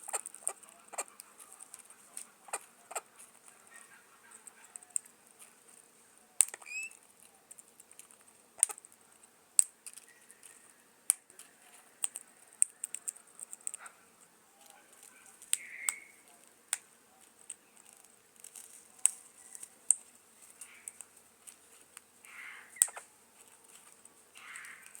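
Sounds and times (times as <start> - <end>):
faint high-pitched whine: 0.0 - 25.0
bird calls: 0.1 - 5.0, 6.4 - 7.0, 10.0 - 10.8, 14.6 - 16.4, 20.6 - 21.0, 22.2 - 23.2, 24.3 - 25.0.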